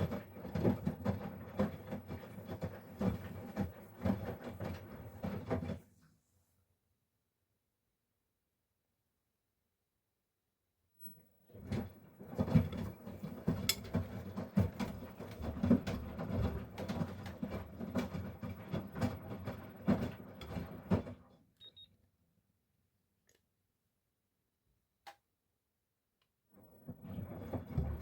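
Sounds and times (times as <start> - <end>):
washing machine drum turning: 11.6 - 21.2.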